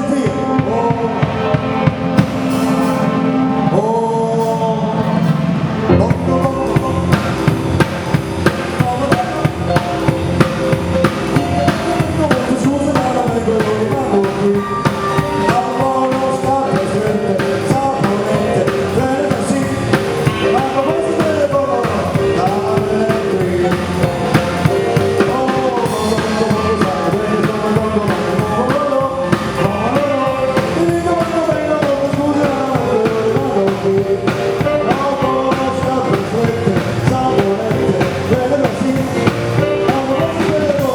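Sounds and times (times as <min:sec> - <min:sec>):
band music with drum beat: 0:00.0 - 0:03.6, 0:04.4 - 0:40.9.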